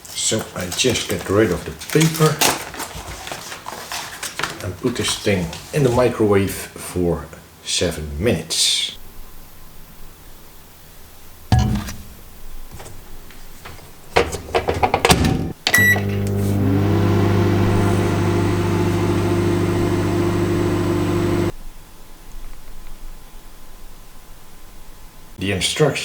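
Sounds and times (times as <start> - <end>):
microwave humming: 13.6 - 21.6
microwave door shutting: 14.2 - 21.5
short beep: 15.8 - 16.1.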